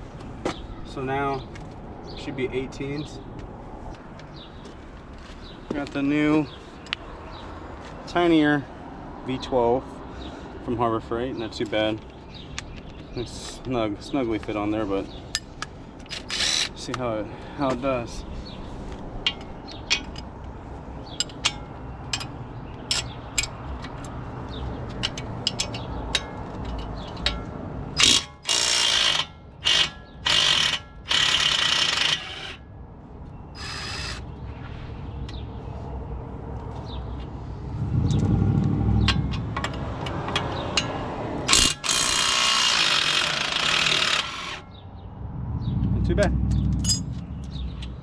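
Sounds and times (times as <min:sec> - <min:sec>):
impact wrench hammering bolt: 0:28.0 - 0:32.5, 0:41.5 - 0:44.6.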